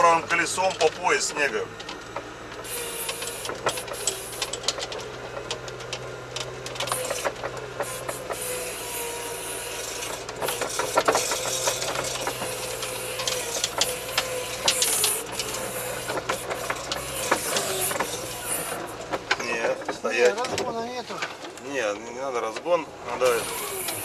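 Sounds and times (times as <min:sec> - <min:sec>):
body clatter and rattling: 0:00.0 - 0:08.6, 0:09.8 - 0:24.0
vehicle engine under load: 0:00.0 - 0:24.0
scraping and hissing: 0:02.6 - 0:04.8, 0:06.8 - 0:19.1, 0:23.2 - 0:24.0.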